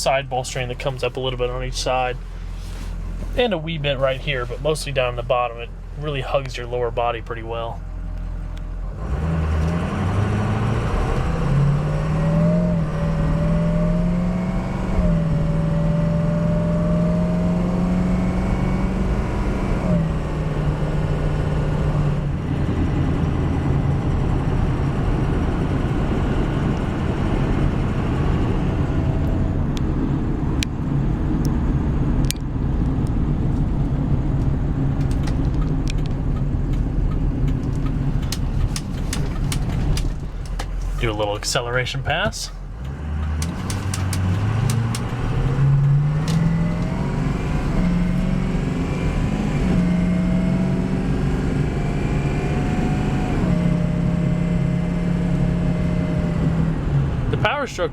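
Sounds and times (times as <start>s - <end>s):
diesel truck engine accelerating: 0.0s - 57.9s
sharp ticks: 43.2s - 45.2s.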